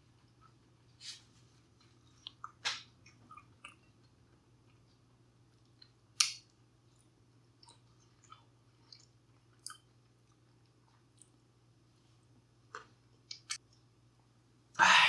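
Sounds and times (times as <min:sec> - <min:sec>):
person chewing food: 0:01.8 - 0:11.4.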